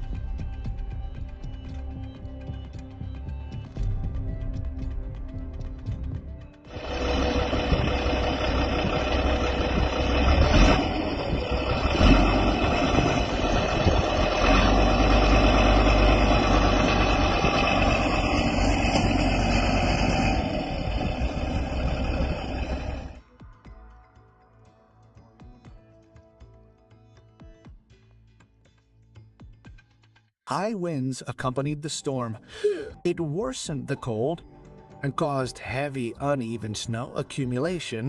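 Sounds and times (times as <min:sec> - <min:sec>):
vehicle engine rumbling: 0:06.7 - 0:23.2.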